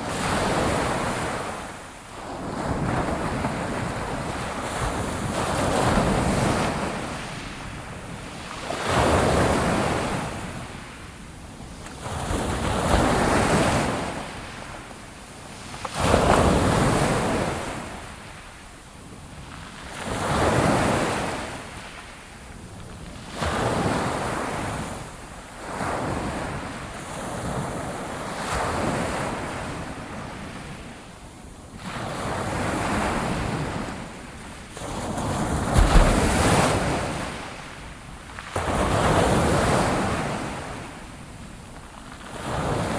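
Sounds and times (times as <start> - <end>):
sea waves breaking on shore: 31.8 - 41.0.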